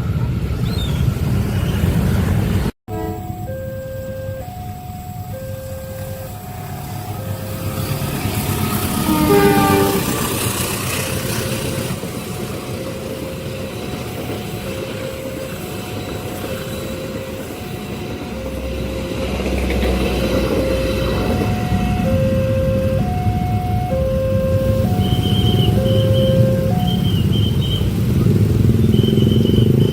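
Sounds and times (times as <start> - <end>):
train rumble: 0.0 - 29.9
train horn: 2.9 - 3.4, 8.8 - 10.5
level crossing warning alarm: 2.9 - 29.9.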